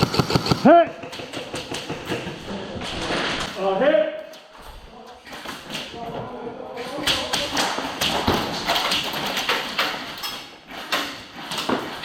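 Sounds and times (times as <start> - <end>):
airsoft guns firing: 0.0 - 0.9.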